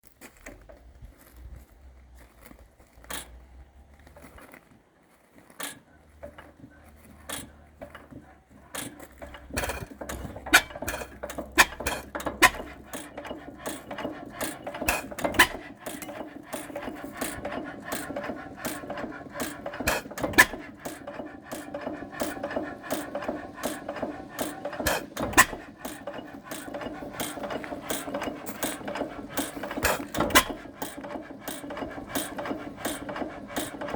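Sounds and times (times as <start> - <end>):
sparse mechanical clicks: 2.4 - 4.7, 5.5 - 33.9
engine clattering and knocking: 5.5 - 33.9.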